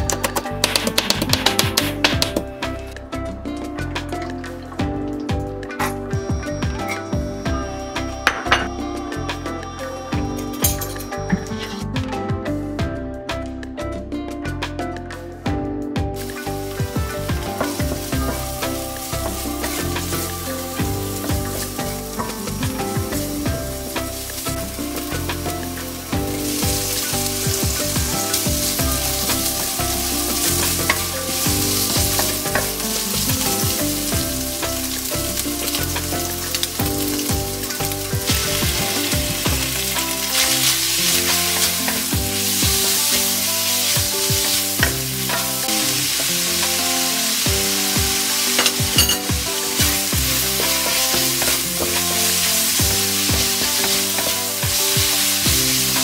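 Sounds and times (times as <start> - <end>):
food sizzling in hot oil: 16.2 - 56.0
wooden spatula stirring in wok: 16.2 - 56.0.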